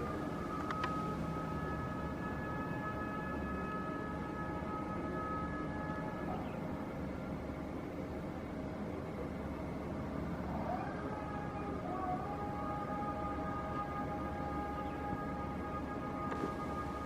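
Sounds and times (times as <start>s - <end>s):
airliner engines rumbling: 0.0s - 17.0s
high engine whine: 0.0s - 17.0s.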